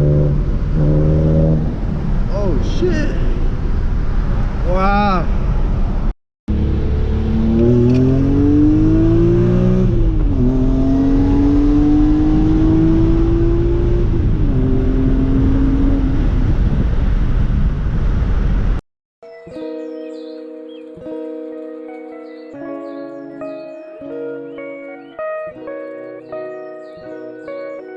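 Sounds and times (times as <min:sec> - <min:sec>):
car engine accelerating through gears: 0:00.0 - 0:02.3, 0:06.5 - 0:17.4.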